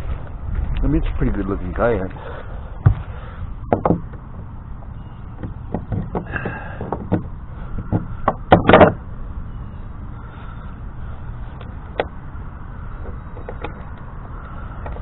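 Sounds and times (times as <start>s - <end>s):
knocks on plastic kayak hull: 3.7s - 4.0s.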